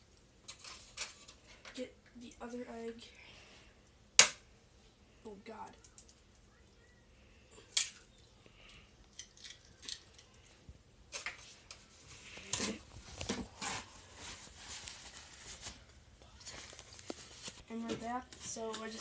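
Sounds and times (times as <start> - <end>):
eggshells clicking and scraping: 7.8 - 13.3.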